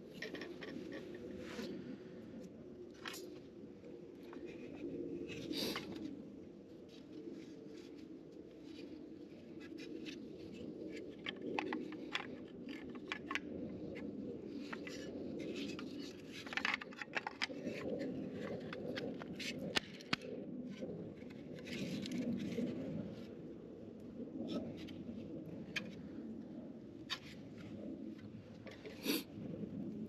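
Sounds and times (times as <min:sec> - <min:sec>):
clicks taps and scrapes: 0:11.2 - 0:13.4, 0:14.6 - 0:20.2.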